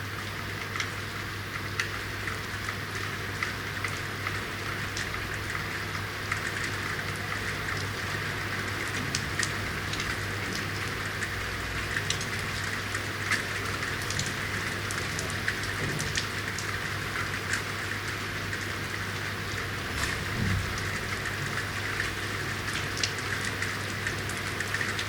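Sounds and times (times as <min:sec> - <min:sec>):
rain falling: 0:00.0 - 0:25.0
raindrops ticking and splashing: 0:00.1 - 0:25.0.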